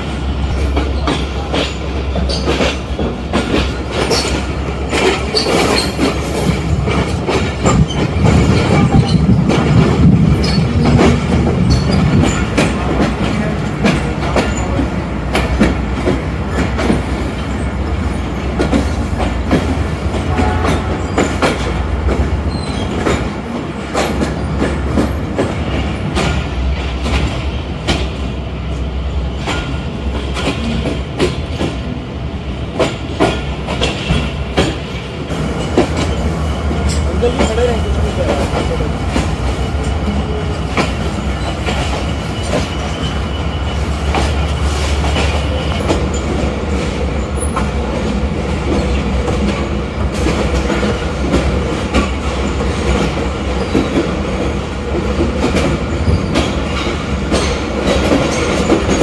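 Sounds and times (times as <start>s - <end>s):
low train rumble: 0.0s - 59.0s
train wheels clicking: 0.0s - 59.0s
wheel squeals: 41.2s - 46.2s.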